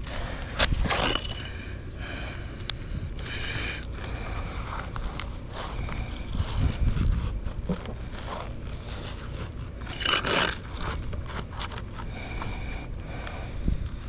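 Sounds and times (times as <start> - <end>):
tool scraping roof shingles: 0.0 - 1.6, 6.5 - 12.6.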